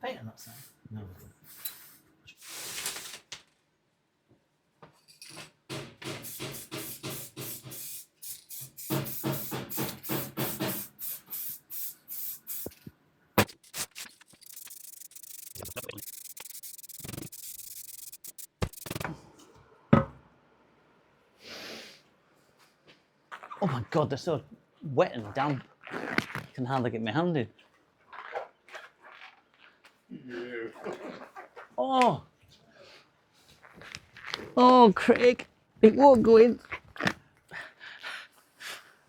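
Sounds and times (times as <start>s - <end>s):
steady hiss: 6.2s - 19.1s
quick rubbing strokes: 13.4s - 19.1s.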